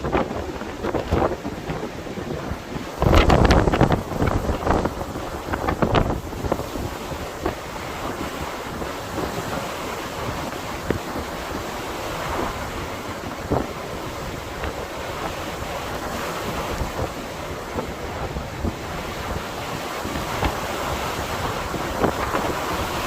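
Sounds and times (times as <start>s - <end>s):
blizzard wind on microphone: 0.0s - 23.0s
wind buffeting thumps: 0.0s - 23.0s.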